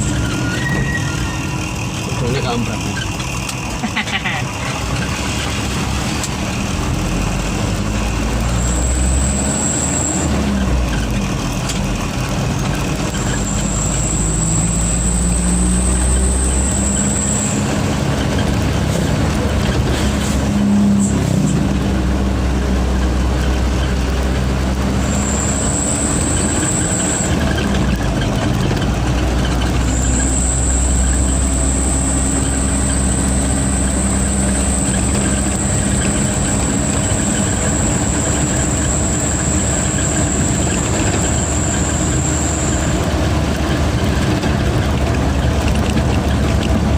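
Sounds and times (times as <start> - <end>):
high turbo whistle: 0.0 - 1.8, 8.5 - 10.3, 13.4 - 17.7, 29.8 - 43.1
diesel truck engine rumble: 0.0 - 46.9.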